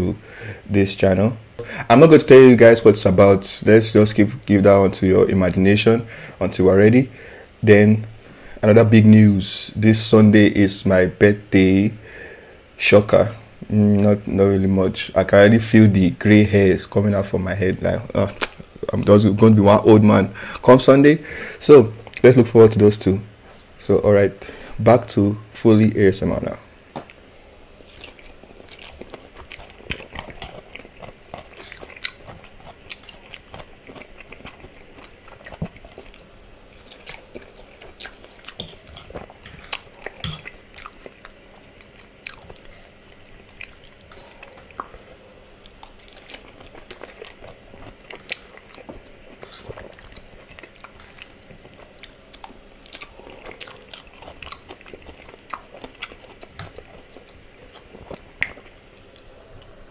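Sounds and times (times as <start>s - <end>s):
wet chewing smacks: 26.9s - 59.8s.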